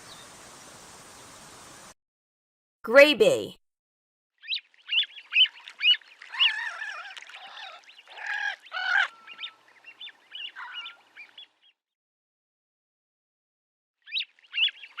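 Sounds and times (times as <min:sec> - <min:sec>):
waterbird calling: 0:04.4 - 0:11.8, 0:14.0 - 0:15.0.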